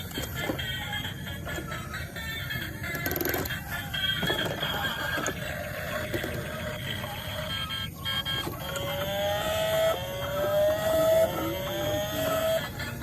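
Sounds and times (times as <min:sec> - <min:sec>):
car engine revving: 0:07.2 - 0:13.0.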